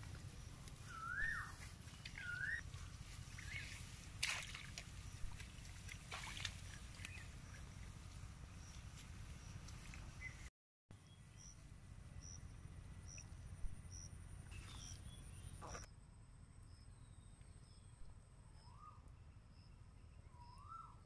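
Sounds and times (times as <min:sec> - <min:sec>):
steady low rumble: 0:00.0 - 0:10.5
bird whistling call: 0:00.9 - 0:01.6, 0:02.2 - 0:02.6.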